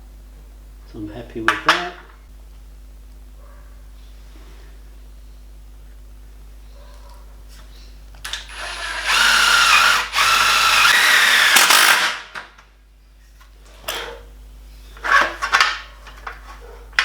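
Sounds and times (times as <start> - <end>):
power drill motor whine: 8.3 - 12.3.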